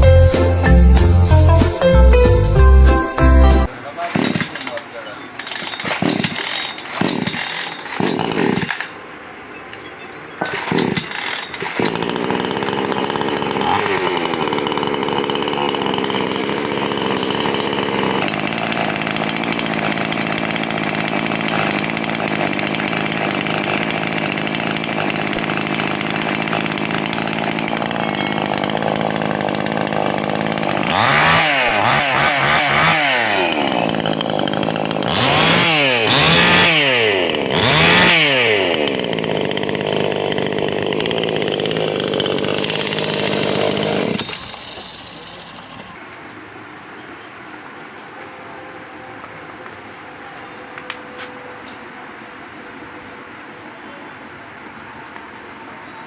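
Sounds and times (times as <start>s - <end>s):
chainsaw engine idling and revving: 5.4s - 8.9s, 10.4s - 46.0s.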